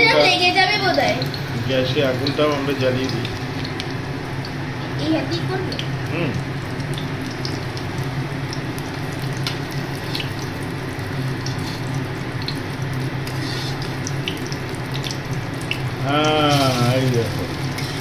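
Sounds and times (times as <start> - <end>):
fritters frying in oil: 0.1 - 18.0
metal spatula scraping pan: 13.3 - 13.9.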